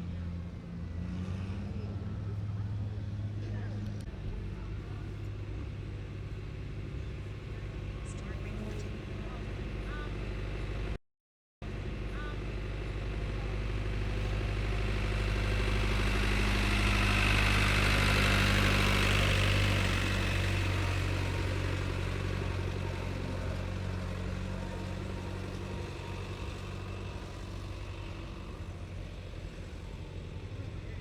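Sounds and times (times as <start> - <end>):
truck engine droning: 0.0 - 11.0, 11.6 - 31.0.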